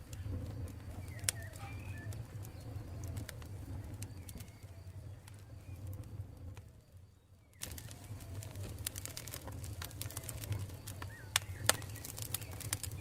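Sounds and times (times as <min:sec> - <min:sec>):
campfire crackling: 0:00.0 - 0:13.0
birds calling: 0:00.8 - 0:05.1, 0:07.6 - 0:13.0.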